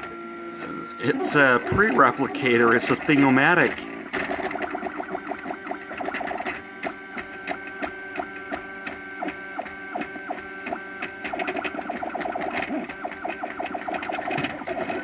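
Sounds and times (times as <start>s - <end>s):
stepper motors whining: 0.0s - 15.0s.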